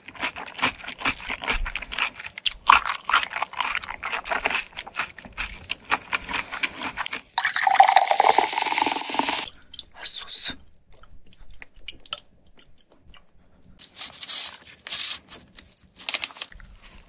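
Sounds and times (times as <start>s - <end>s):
chewing with mouth clicks: 0.0s - 7.4s, 10.6s - 13.9s.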